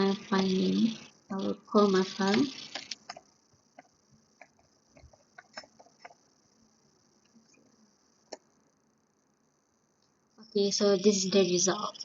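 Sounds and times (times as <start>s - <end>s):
computer keyboard keys clicking: 2.2s - 3.2s.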